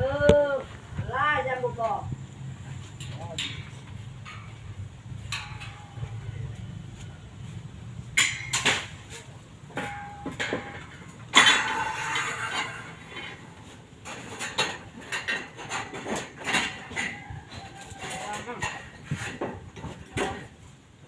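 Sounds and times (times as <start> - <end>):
metal scraping clatter: 2.6 - 20.7
metal clinks and knocks: 2.8 - 6.9, 8.1 - 20.5.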